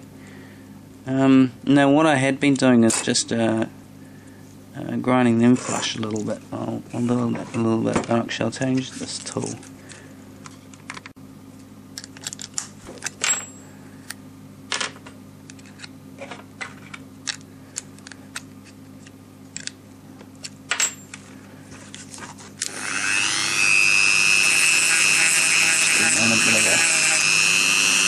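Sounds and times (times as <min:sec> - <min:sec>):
rotary tool motor whine: 0:22.6 - 0:28.0.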